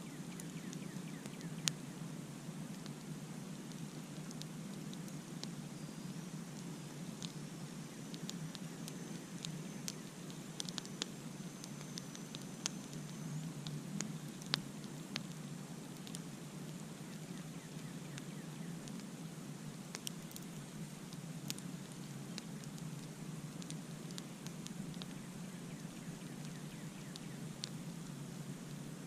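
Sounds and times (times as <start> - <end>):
campfire crackling and popping: 0.0 - 29.0.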